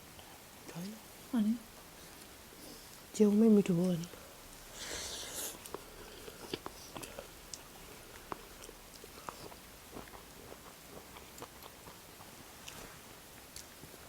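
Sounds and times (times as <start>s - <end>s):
person chewing food: 4.1s - 14.0s
mouth clicks and smacks: 5.5s - 9.6s.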